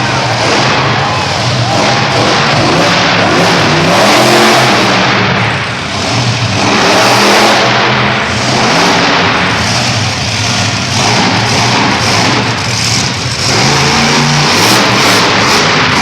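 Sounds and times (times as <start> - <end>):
monster truck engine revving: 0.0 - 16.0.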